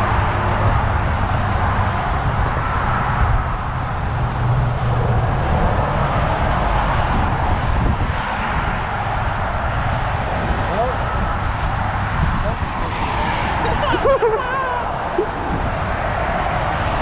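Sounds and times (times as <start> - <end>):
broad rushing noise: 0.0 - 17.0
vehicle engine drone: 0.0 - 17.0.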